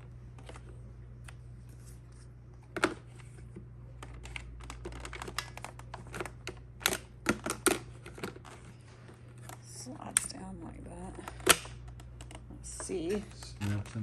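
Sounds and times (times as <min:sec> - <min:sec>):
plastic vacuum parts clicking: 0:04.0 - 0:08.7.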